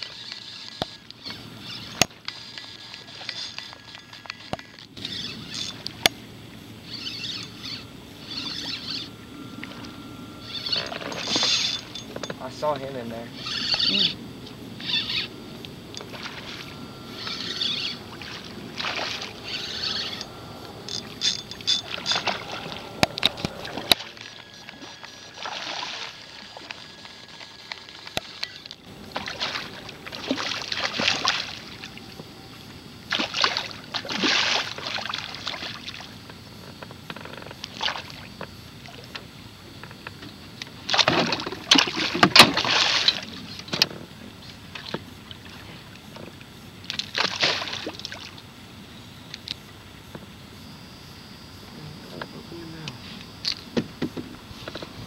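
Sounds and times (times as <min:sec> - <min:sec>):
water splashing around a boat: 0:16.0 - 0:32.0, 0:33.0 - 0:36.3, 0:37.2 - 0:39.3, 0:40.8 - 0:48.5.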